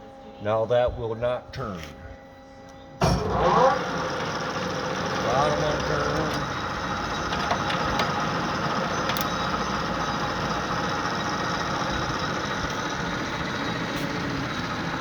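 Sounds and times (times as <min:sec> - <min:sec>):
lathe humming: 0:03.0 - 0:15.0.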